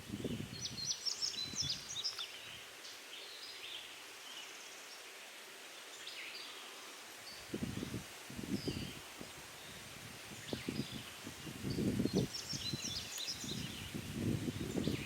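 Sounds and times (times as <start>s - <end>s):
small birds chirping: 0.1s - 5.1s, 5.7s - 9.0s, 9.6s - 15.0s.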